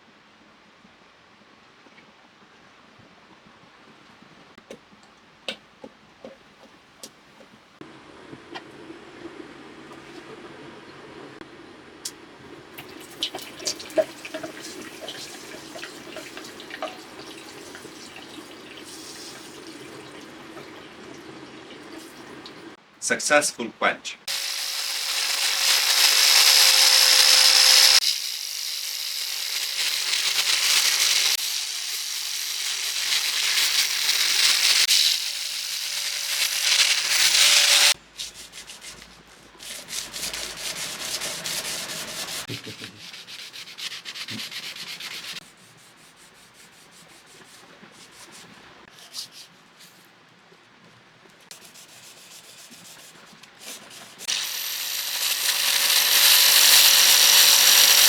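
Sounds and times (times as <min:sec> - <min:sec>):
power sander running: 0:24.3 - 0:38.0, 0:54.3 - 0:58.0
hand sanding strokes on blade: 0:36.6 - 0:48.5, 0:51.5 - 0:58.0.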